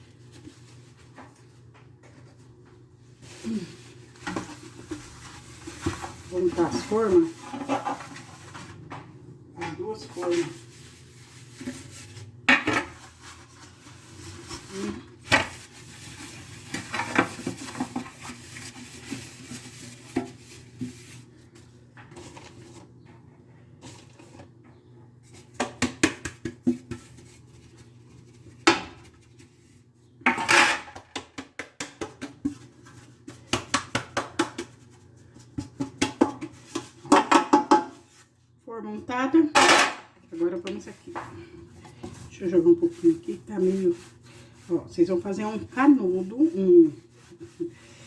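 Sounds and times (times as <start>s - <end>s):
rubbing on metal pans: 3.2s - 8.9s, 9.7s - 22.8s, 39.2s - 48.0s
metal pans clattering: 39.5s - 40.1s.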